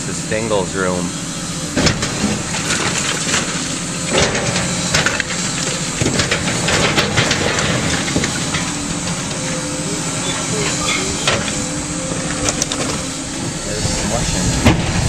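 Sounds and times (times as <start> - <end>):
heavy demolition machinery running: 0.0 - 15.0
debris cracking and crunching: 1.8 - 13.7.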